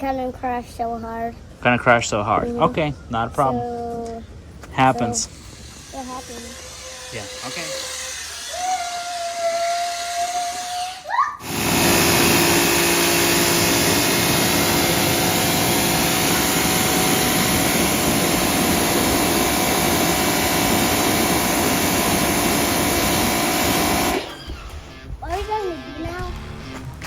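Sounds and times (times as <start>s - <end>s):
motor-driven machine hissing: 5.0s - 25.1s.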